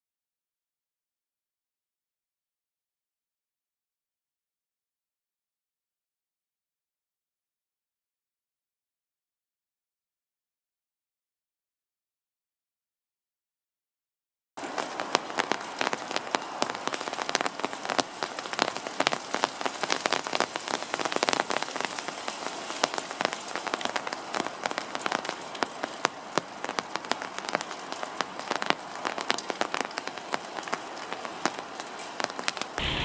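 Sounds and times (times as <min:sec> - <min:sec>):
rain pattering on an umbrella: 0:14.6 - 0:33.0.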